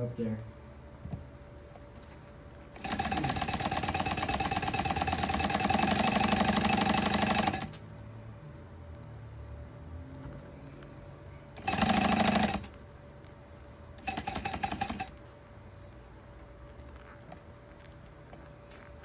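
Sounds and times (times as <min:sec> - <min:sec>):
sewing machine stitching: 0:02.8 - 0:07.8, 0:11.6 - 0:12.8, 0:14.0 - 0:15.1.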